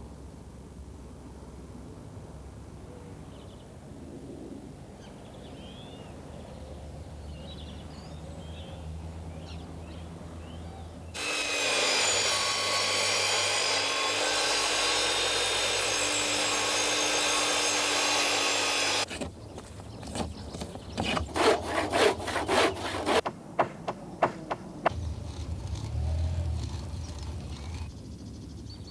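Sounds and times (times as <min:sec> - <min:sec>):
saw cutting timber: 0:11.2 - 0:19.2, 0:21.0 - 0:27.9.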